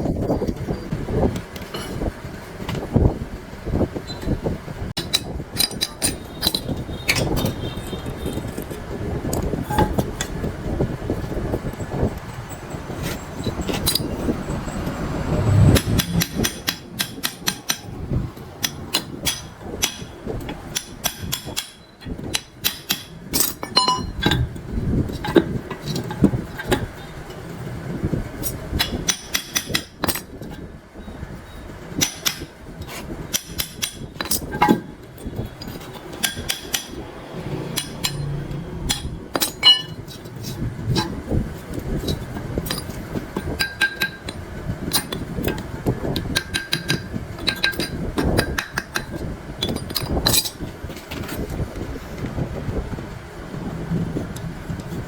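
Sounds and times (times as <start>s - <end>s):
hand tools knocking on steel: 18.6s - 24.4s, 37.7s - 40.0s, 46.2s - 50.5s.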